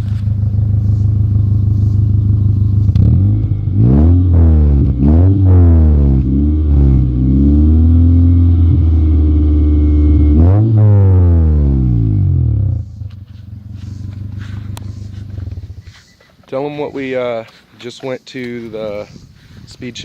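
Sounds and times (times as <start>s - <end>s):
car engine revving: 0.0s - 15.9s.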